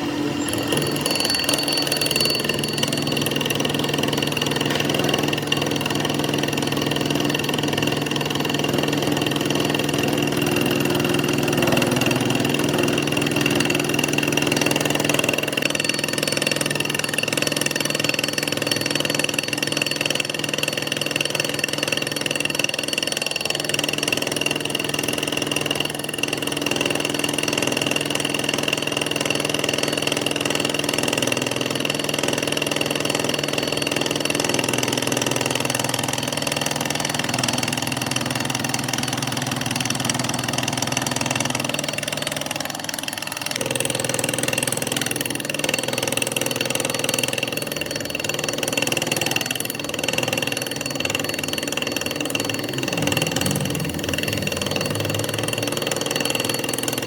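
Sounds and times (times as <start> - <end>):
high machine whine: 52.0 - 57.0.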